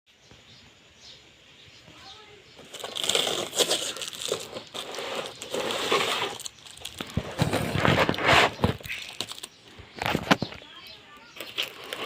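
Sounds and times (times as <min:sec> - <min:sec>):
rustling and clattering objects: 0:02.6 - 0:12.0.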